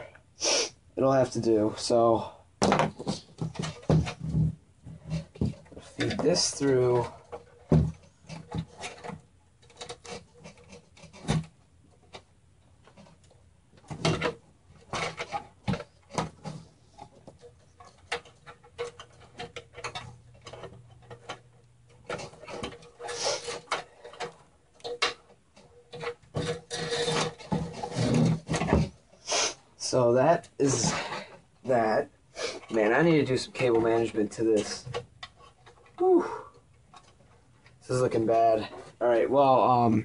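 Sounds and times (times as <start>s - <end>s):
cable rubbing against case: 4.9s - 11.4s, 14.2s - 28.9s.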